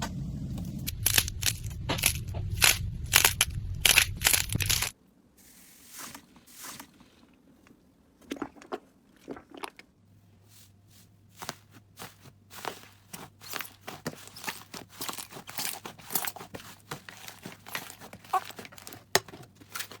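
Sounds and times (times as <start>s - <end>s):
low rumble: 0.0s - 4.9s
slime crackling and popping: 0.8s - 5.0s.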